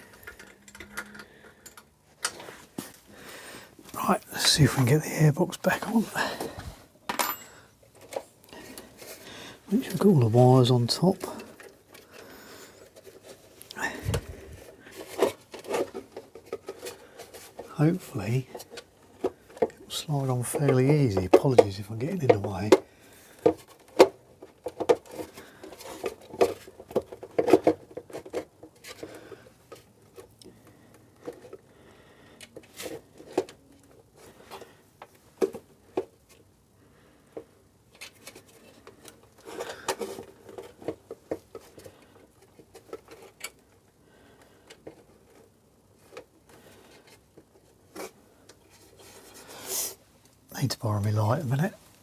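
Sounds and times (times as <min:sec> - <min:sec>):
clicks and knocks of plastic parts: 0:00.0 - 0:03.0, 0:18.4 - 0:36.5, 0:37.3 - 0:49.4.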